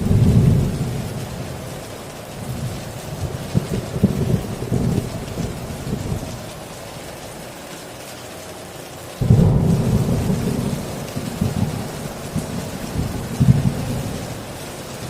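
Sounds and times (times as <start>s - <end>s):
loud thunderclap: 0.0s - 1.4s, 9.2s - 15.0s
thunder rolling: 0.0s - 1.6s, 2.4s - 6.5s, 9.2s - 15.0s
heavy rain pouring: 0.0s - 15.0s.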